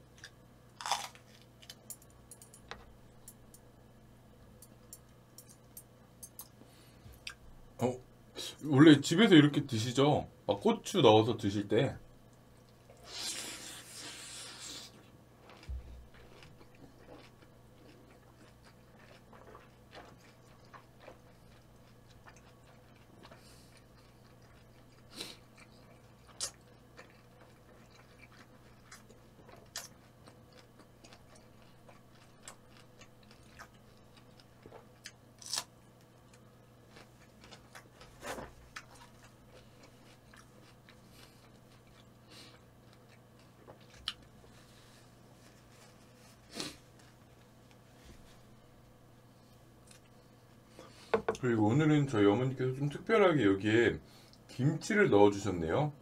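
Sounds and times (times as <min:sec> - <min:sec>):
person chewing crunchy food: 0:00.1 - 0:01.9, 0:12.8 - 0:47.8.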